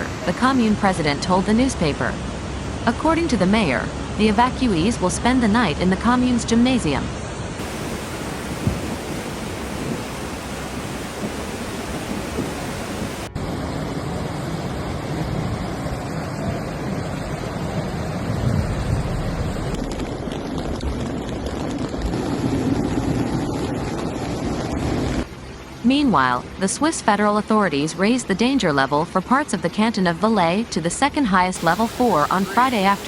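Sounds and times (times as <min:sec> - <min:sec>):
river torrent rushing: 0:00.0 - 0:02.9, 0:07.6 - 0:18.8, 0:31.6 - 0:33.0.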